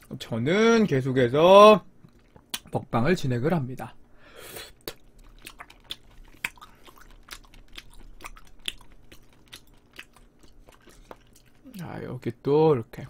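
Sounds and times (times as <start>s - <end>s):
mouth chewing with wet smacks: 2.0s - 2.8s, 4.7s - 11.9s
sharp chewing clicks: 2.0s - 2.8s, 4.8s - 11.9s.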